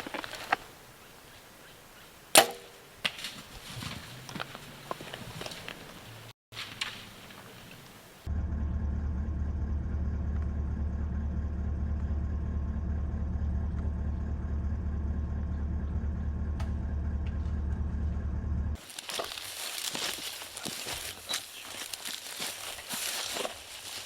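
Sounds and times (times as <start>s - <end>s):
truck engine droning: 5.8s - 20.5s.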